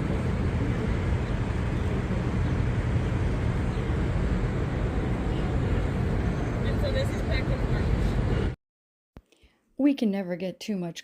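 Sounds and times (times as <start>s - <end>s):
low engine rumble: 0.0s - 8.6s
outdoor noise: 0.0s - 8.6s.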